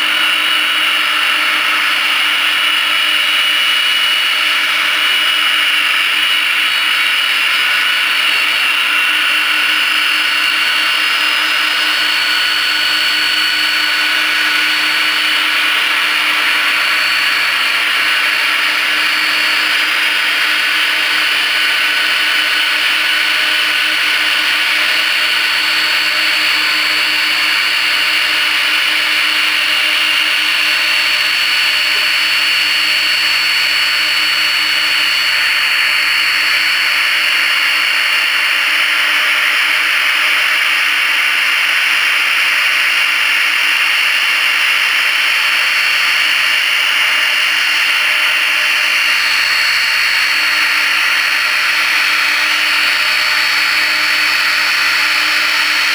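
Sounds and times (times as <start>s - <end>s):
jet engines running: 0.0s - 55.9s.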